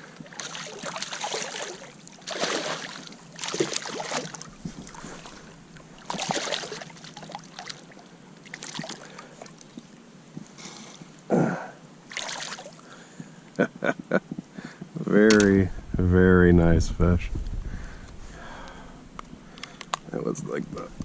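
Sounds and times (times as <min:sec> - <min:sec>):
water splashing: 0:00.2 - 0:09.6, 0:12.1 - 0:12.8.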